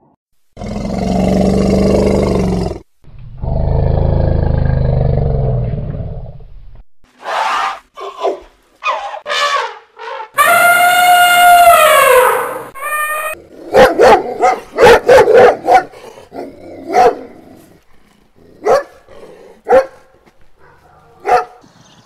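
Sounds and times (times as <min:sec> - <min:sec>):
dog barking: 0:08.0 - 0:09.6, 0:13.7 - 0:17.3, 0:18.6 - 0:21.6
elephant trumpeting: 0:08.8 - 0:13.4.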